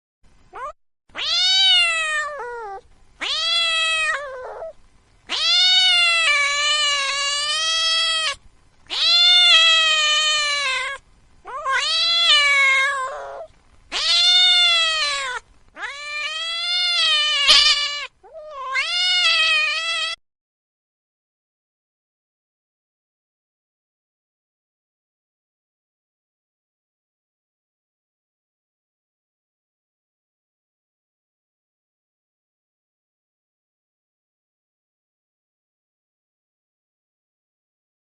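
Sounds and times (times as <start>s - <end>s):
cat meowing: 0.6s - 20.2s.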